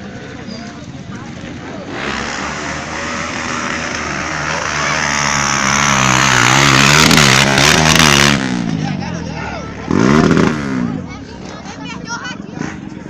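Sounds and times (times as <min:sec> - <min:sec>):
dirt bike engine revving: 0:01.6 - 0:11.6.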